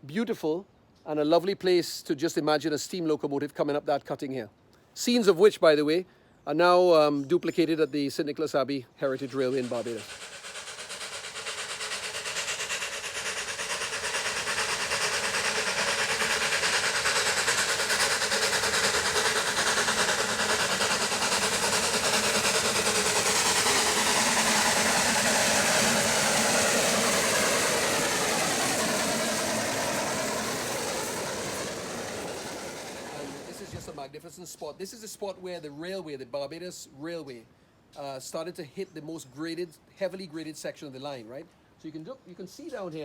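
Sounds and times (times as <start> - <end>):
steam train passing: 8.4 - 34.6.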